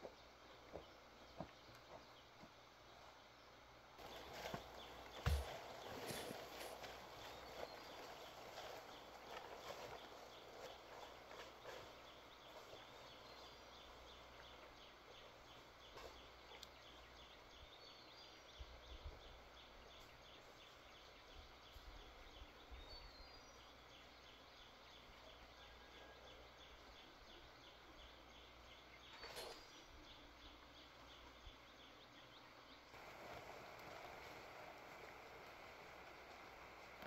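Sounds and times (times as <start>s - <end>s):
faint outdoor ambience: 0.0s - 37.0s
brief rustle: 29.1s - 29.8s.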